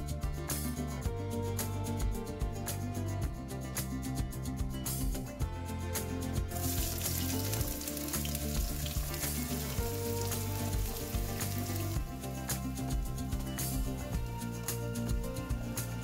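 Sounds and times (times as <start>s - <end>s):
background music: 0.0s - 16.0s
food sizzling in hot oil: 6.5s - 14.2s.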